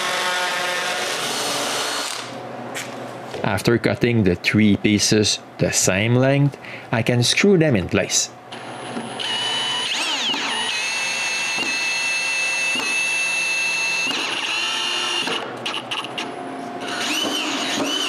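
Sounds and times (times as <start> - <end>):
power drill driving screws: 0.0 - 2.4, 8.6 - 16.2, 16.8 - 18.0.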